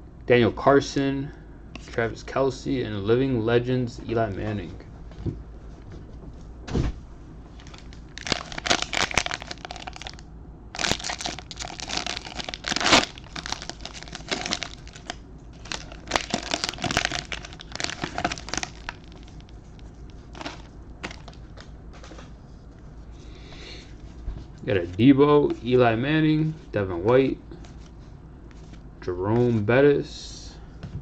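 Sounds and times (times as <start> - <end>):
wrappers torn open and crinkled: 7.6 - 19.6, 20.2 - 21.4.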